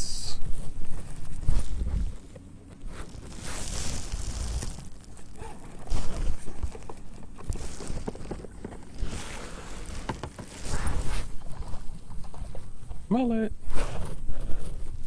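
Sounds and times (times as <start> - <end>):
wind on microphone: 0.0 - 8.2
water sloshing against kayak: 1.2 - 12.8.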